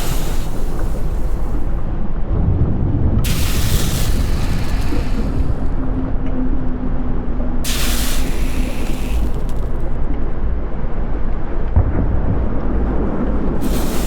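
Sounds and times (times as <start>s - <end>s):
loud hiss bursts: 0.0s - 1.8s, 3.2s - 5.8s, 7.6s - 10.0s, 13.6s - 14.0s
volcanic eruption rumble: 0.0s - 14.0s.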